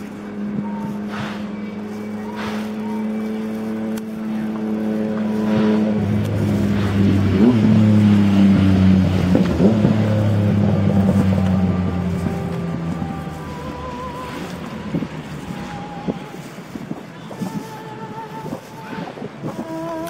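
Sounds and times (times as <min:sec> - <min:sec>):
train mechanical hum: 0:00.0 - 0:08.1.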